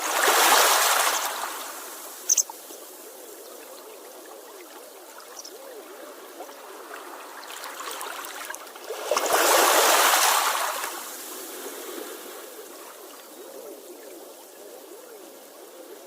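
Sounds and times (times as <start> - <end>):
wave washing in: 0.0 - 2.2, 6.2 - 13.1
sea water trickling and gurgling: 0.0 - 16.0.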